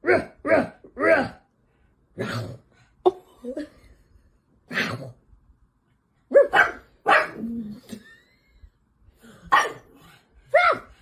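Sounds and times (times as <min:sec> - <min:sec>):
dog barking: 0:06.3 - 0:07.4, 0:09.5 - 0:09.9, 0:10.5 - 0:10.9.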